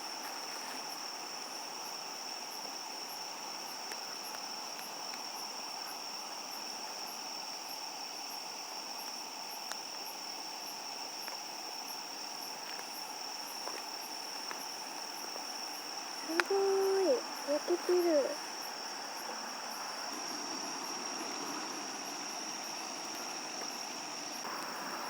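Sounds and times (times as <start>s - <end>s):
cricket chirps: 0.0s - 25.0s
insects trilling: 0.0s - 25.0s
campfire crackles: 9.0s - 25.0s.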